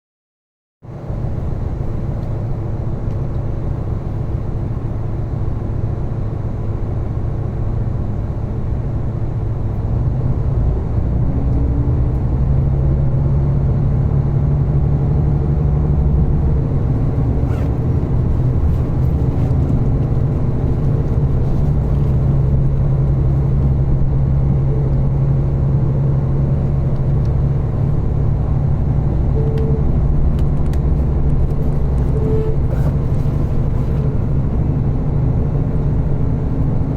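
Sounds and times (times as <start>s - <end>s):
train engine drone: 0.9s - 36.9s
train rolling noise: 16.0s - 36.9s.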